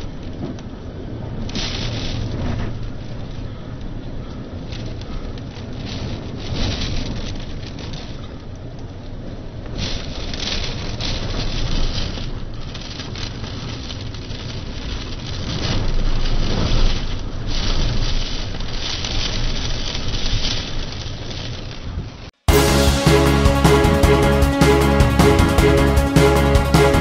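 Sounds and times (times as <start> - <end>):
wind: 0.0 - 22.5
rain: 0.0 - 27.0.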